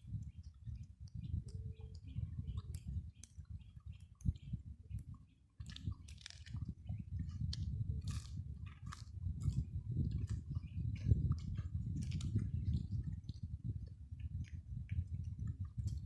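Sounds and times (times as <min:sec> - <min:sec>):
person chewing crunchy food: 0:05.6 - 0:13.0.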